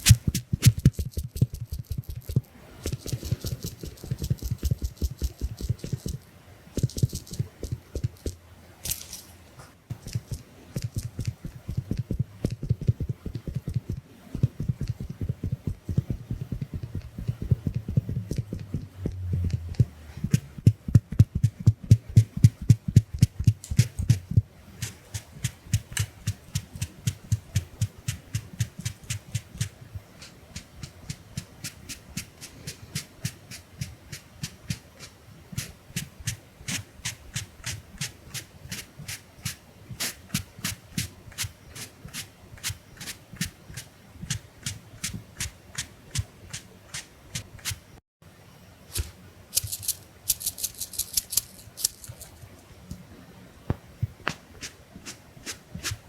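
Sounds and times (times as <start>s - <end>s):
hissy rustle: 0.0s - 0.8s, 23.6s - 48.0s
sponge tapping on microphone: 10.2s - 24.5s.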